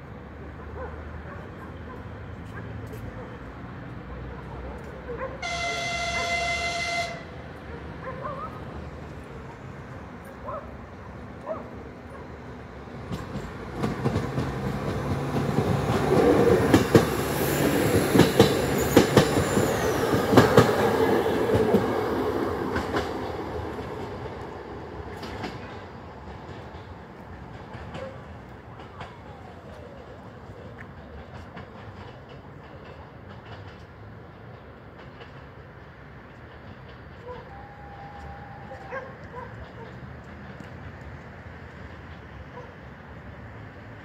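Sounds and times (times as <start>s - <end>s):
railbus engine passing: 0.0s - 44.0s
train horn blast: 5.4s - 7.5s
wheels clicking over rail joints: 7.5s - 44.0s.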